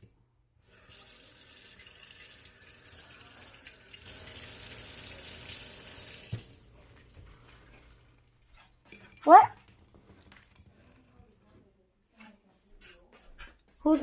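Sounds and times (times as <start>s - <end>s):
tap water running into sink: 0.6s - 6.6s.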